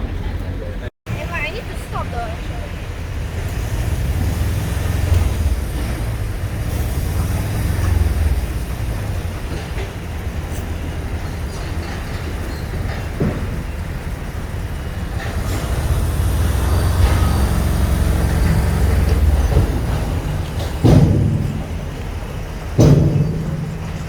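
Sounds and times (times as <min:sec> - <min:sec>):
train rumbling: 0:00.0 - 0:24.0
loud low thump: 0:15.2 - 0:24.0.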